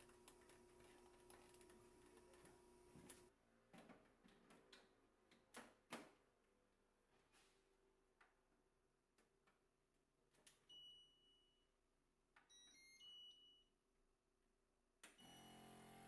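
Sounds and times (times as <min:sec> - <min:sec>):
appliance chime beeps: 0:15.2 - 0:15.7.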